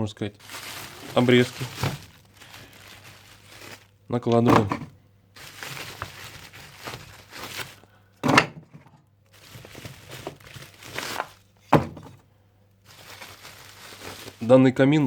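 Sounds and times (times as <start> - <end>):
wood scraping and rustling: 0.4 - 12.2
firewood being laid in fireplace: 4.4 - 5.0, 8.2 - 9.0, 11.7 - 12.2
wooden thunks: 4.4 - 5.0, 8.2 - 9.0, 11.7 - 12.2.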